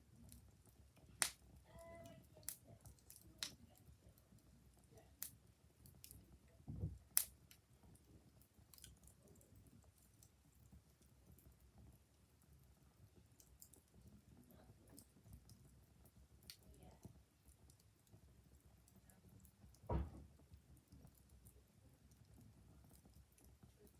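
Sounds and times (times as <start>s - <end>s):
wood fire crackling: 0.0s - 23.9s
dull thump: 19.9s - 20.2s.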